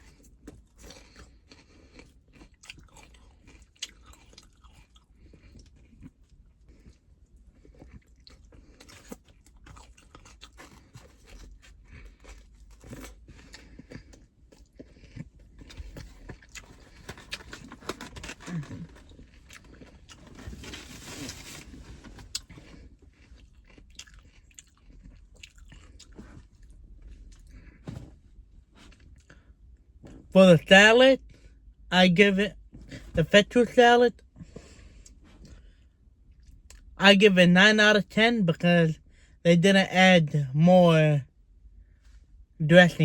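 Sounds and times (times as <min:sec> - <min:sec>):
person chewing and crunching food: 0:00.0 - 0:30.3, 0:34.2 - 0:37.0.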